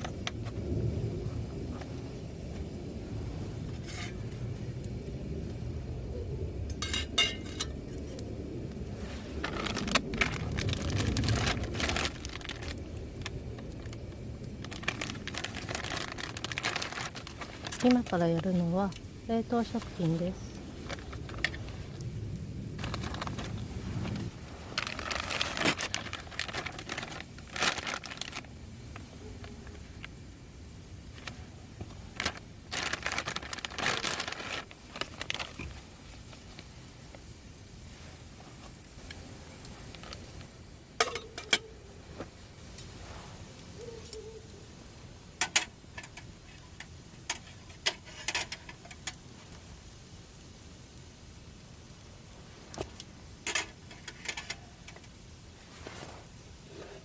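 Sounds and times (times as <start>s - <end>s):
plastic packaging crinkling and tearing: 9.0s - 18.7s, 19.6s - 30.1s, 31.1s - 37.3s, 38.5s - 41.2s.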